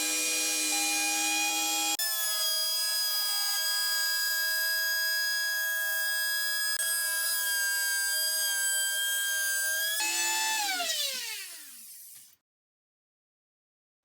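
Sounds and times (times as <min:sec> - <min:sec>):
power tool motor whining: 0:00.0 - 0:12.4.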